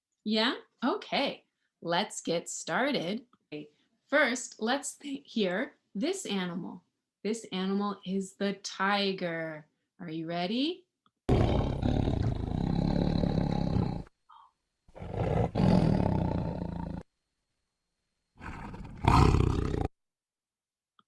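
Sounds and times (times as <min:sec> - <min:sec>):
tiger roaring: 0:11.3 - 0:14.1, 0:14.9 - 0:17.0, 0:18.4 - 0:19.9.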